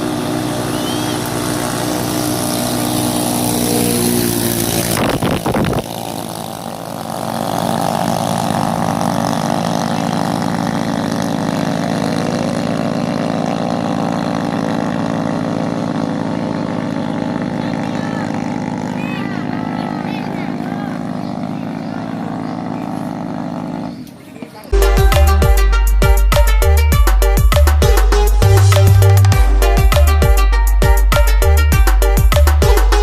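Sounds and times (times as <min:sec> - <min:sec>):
racing boat engines at speed: 0:00.0 - 0:25.7.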